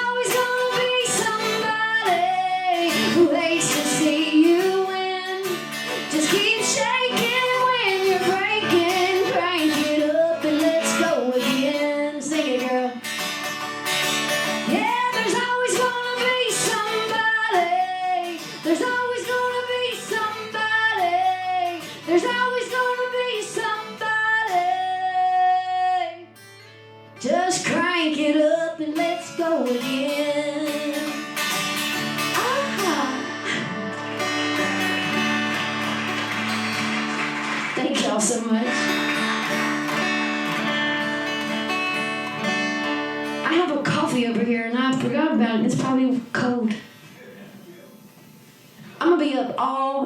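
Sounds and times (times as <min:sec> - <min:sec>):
woman singing: 0:00.0 - 0:13.1, 0:14.6 - 0:26.3, 0:27.2 - 0:31.3, 0:32.2 - 0:35.4, 0:37.8 - 0:39.2, 0:43.3 - 0:46.9, 0:49.0 - 0:50.0
acoustic guitar strumming: 0:00.0 - 0:28.1, 0:28.8 - 0:47.0.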